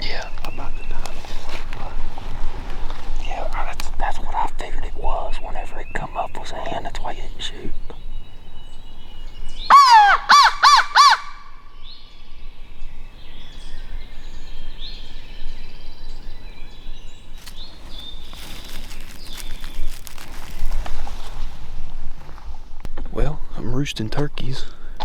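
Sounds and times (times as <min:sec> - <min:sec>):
faint bird calls: 0:04.7 - 0:21.6
crow cawing: 0:09.7 - 0:11.6.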